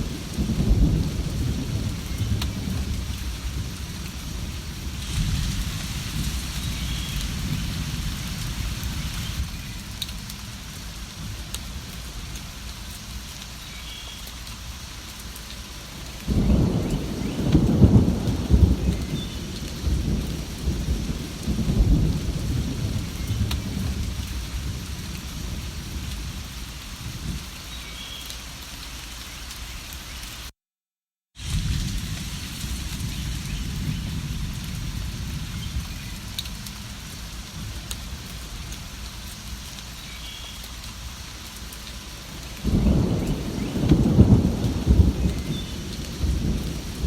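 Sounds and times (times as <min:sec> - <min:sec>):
thunder rolling: 0:00.0 - 0:10.4, 0:16.3 - 0:26.4, 0:31.4 - 0:38.4, 0:42.6 - 0:47.0
steady rain: 0:00.0 - 0:30.6, 0:31.4 - 0:47.0.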